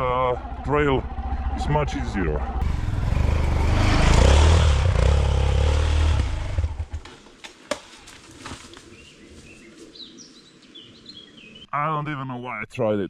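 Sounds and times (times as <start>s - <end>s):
dirt bike engine revving: 2.5s - 7.0s.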